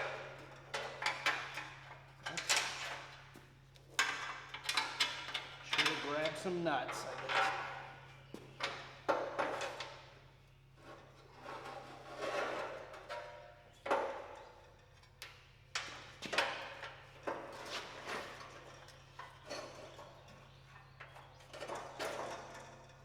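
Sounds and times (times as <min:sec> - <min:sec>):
metal clanks and knocks: 0:00.0 - 0:10.2.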